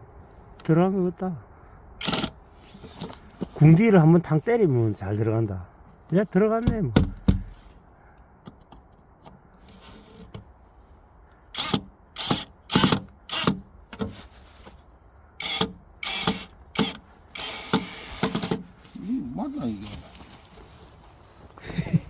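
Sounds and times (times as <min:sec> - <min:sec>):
parts knocking and clattering: 0:06.6 - 0:07.6.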